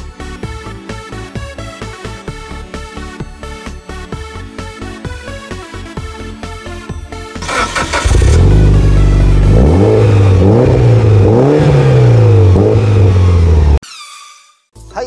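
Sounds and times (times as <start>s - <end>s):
car engine idling: 7.4s - 13.6s
car engine revving: 7.4s - 13.8s.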